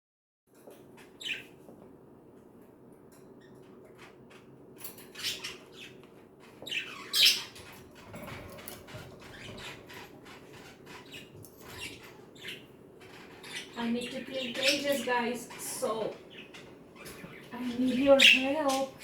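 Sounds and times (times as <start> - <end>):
budgerigars chattering: 4.0 - 6.0, 6.6 - 19.0.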